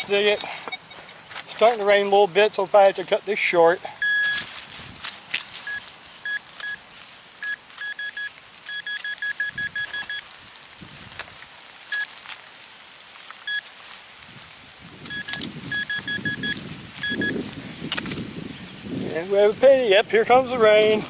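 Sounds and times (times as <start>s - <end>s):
metal detector beeps: 0.0s - 1.2s, 4.0s - 4.5s, 5.6s - 6.8s, 7.4s - 10.2s, 15.0s - 17.4s
digging scrapes in soil: 4.0s - 15.9s.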